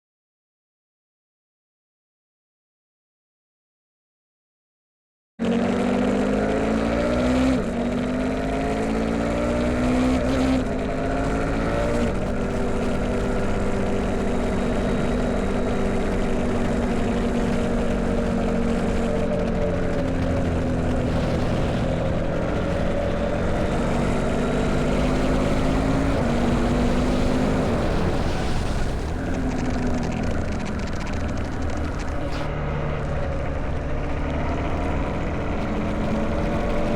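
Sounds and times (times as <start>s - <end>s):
motorcycle engine accelerating: 5.4s - 36.9s.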